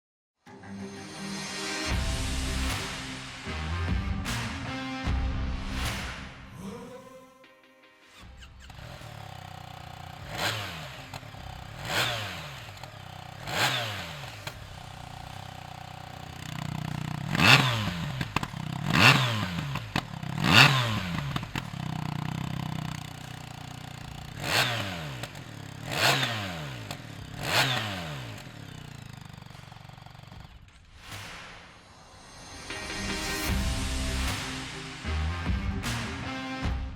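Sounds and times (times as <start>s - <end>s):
motorcycle engine revving: 8.2s - 30.8s
motorcycle engine idling: 8.5s - 30.7s.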